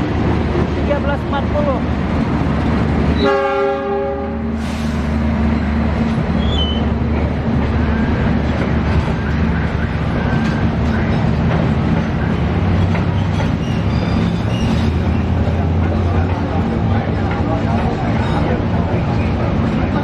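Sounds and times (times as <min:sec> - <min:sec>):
train engine drone: 0:00.0 - 0:20.0
wheels rumbling on rails: 0:00.0 - 0:20.0
high wheel squeals: 0:06.4 - 0:06.9, 0:13.1 - 0:15.3.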